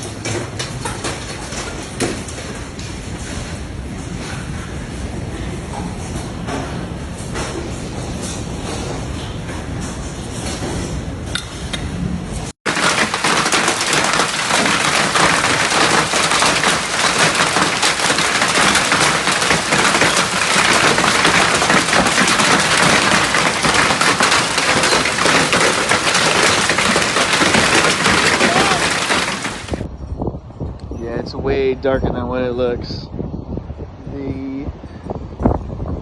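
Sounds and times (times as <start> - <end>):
hail and heavy rain pounding: 0.0 - 3.5, 12.7 - 29.9
wind and rain rumble: 11.9 - 36.0.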